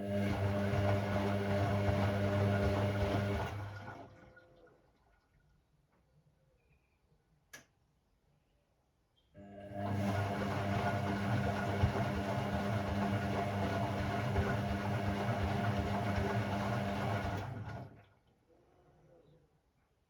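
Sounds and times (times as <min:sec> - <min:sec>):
washing machine humming: 0:00.0 - 0:05.2, 0:09.4 - 0:18.2.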